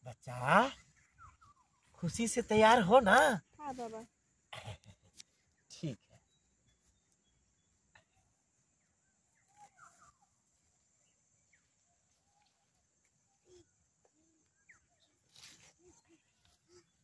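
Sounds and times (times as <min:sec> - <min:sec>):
faint bird calls: 0:09.0 - 0:10.5.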